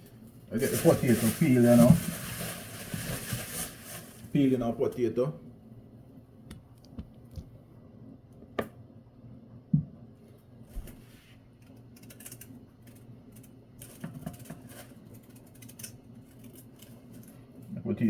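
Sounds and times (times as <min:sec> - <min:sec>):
knife scraping potato: 0:11.0 - 0:17.6.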